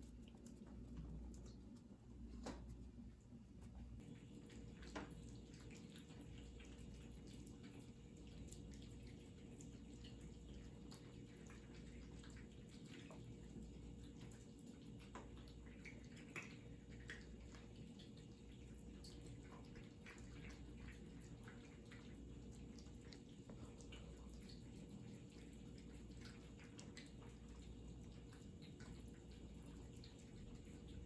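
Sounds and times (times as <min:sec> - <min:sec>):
cats eating wet clicks: 0:00.0 - 0:31.0
low steady hum: 0:00.0 - 0:31.0.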